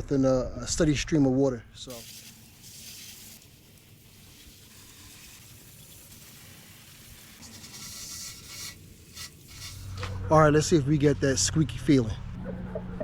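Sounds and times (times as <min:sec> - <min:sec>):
garden hose spraying water: 0:01.8 - 0:10.3.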